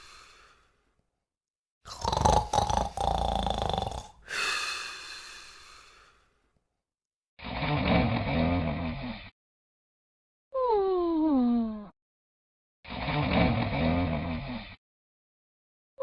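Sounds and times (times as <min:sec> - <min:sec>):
long breathy exhale: 0:00.0 - 0:00.8, 0:04.2 - 0:06.3
dog snoring: 0:01.9 - 0:04.2, 0:07.4 - 0:09.3, 0:12.9 - 0:14.6.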